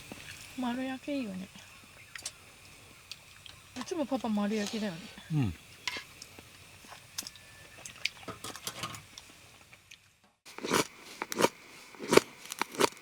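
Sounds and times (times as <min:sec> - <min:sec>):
crisp food crunching: 0:10.5 - 0:13.0.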